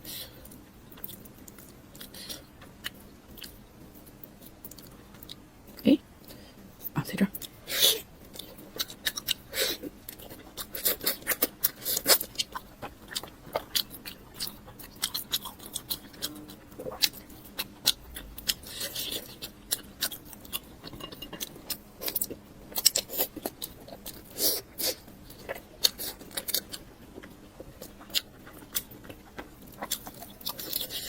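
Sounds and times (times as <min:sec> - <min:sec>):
chewing and mouth smacks: 0:08.3 - 0:31.0.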